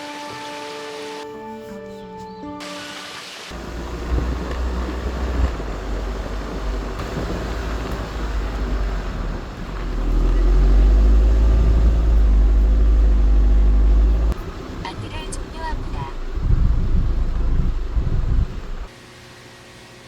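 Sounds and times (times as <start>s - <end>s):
vehicle engine rumbling: 3.5s - 18.9s.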